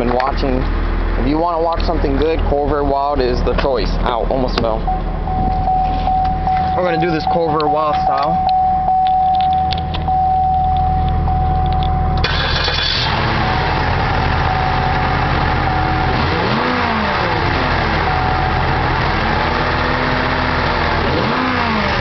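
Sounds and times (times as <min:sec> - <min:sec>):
electronic warning chime: 0:04.8 - 0:12.2, 0:14.3 - 0:19.0
car engine starting and revving: 0:09.7 - 0:22.0.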